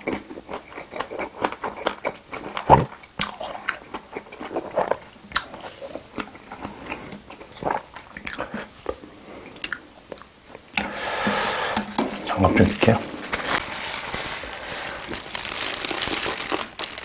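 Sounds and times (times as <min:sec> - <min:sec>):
chewing and crunching: 0:00.0 - 0:10.9, 0:11.8 - 0:17.0
wet mouth sounds: 0:00.0 - 0:12.4.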